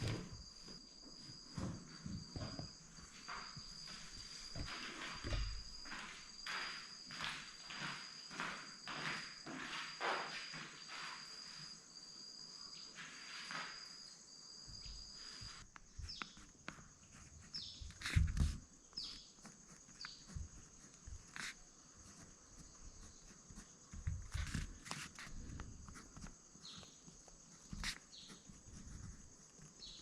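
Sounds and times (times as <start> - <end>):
footsteps outdoors: 0.0 - 11.2
chorus of insects: 0.0 - 30.0
high pulsing insect call: 0.0 - 30.0.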